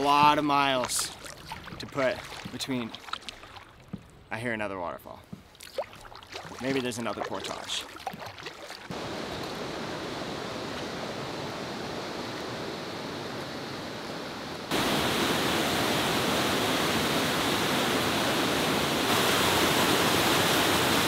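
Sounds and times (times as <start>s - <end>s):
waterfall rushing: 8.9s - 21.0s.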